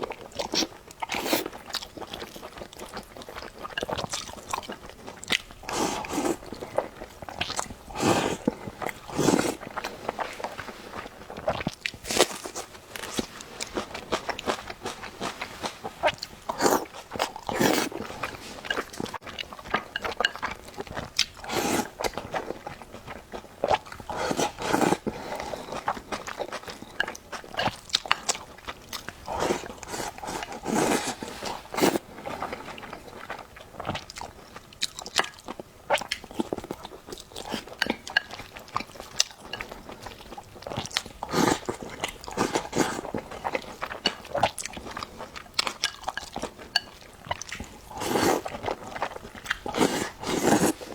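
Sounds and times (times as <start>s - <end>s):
wet chewing and lip smacking: 16.0s - 50.9s.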